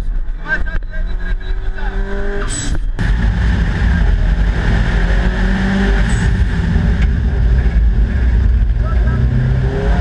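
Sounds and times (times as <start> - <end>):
car engine pulling hard: 1.6 - 10.0.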